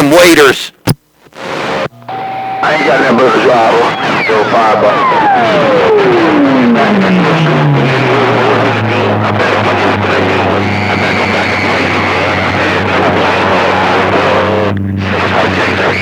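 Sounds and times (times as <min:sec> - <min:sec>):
radio static: 0:00.0 - 0:16.0
low steady hum: 0:00.8 - 0:16.0.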